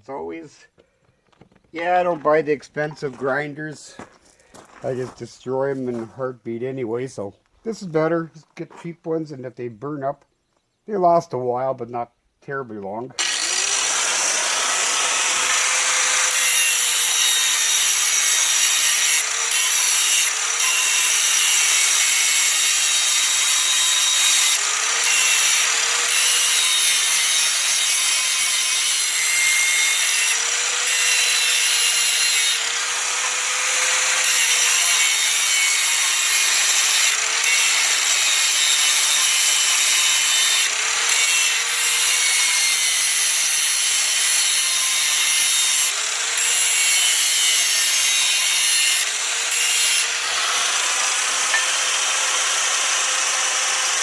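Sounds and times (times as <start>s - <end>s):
angle grinder grinding metal: 13.2s - 54.0s.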